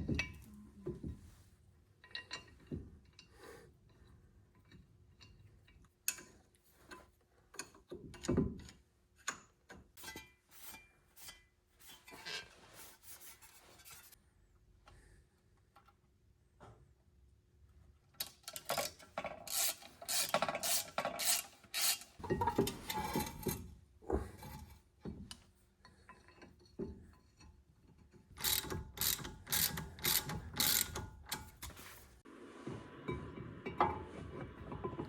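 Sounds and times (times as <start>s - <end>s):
hand tool clicking rasp: 18.6s - 22.2s, 28.4s - 31.9s.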